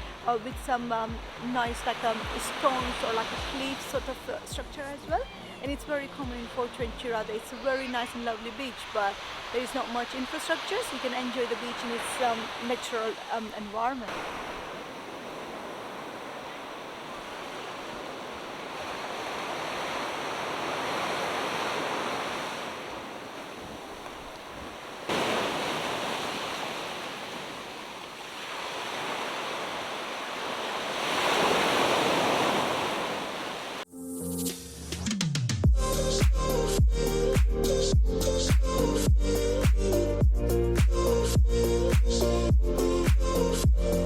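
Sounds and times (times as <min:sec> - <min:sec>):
ocean waves breaking on beach: 0:00.0 - 0:33.9
music with drums: 0:04.5 - 0:07.0, 0:34.5 - 0:44.0.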